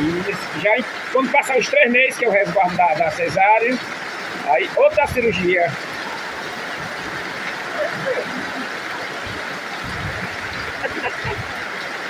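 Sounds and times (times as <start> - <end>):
steady rain hiss: 0.0 - 12.0
faint voices: 4.4 - 11.6.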